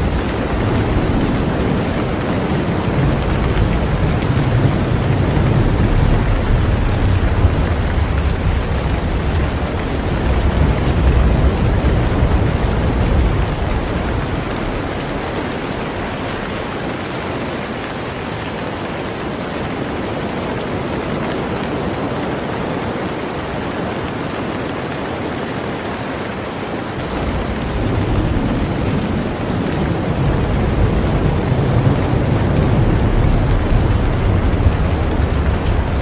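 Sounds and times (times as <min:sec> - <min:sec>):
heavy rain on a boat: 0:00.0 - 0:36.0
low rumble: 0:27.0 - 0:36.0.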